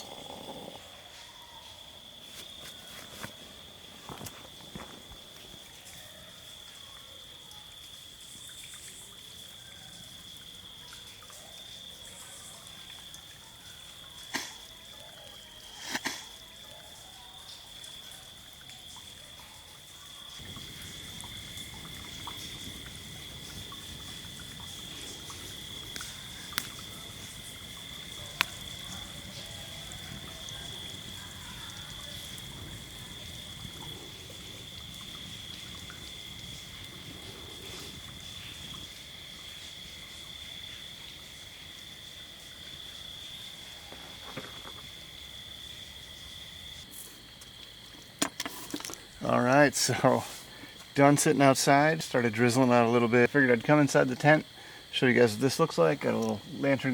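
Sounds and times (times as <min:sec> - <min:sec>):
campfire pops: 0:00.0 - 0:06.7, 0:14.0 - 0:16.5, 0:20.4 - 0:42.0, 0:42.6 - 0:45.3, 0:46.8 - 0:49.3, 0:55.8 - 0:56.9
lower steady insect note: 0:00.0 - 0:56.9
night insects chorus: 0:00.0 - 0:56.9.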